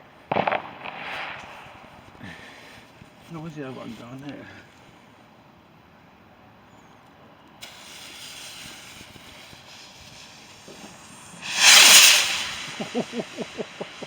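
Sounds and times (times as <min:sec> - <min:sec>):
firework rushing burst: 0:00.3 - 0:02.0, 0:07.6 - 0:14.0
firework hissing: 0:07.6 - 0:14.0.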